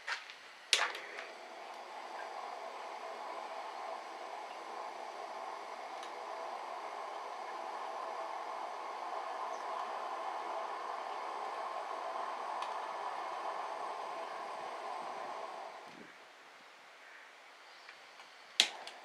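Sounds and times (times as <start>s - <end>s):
wood fire rushing hiss: 0.8s - 16.2s.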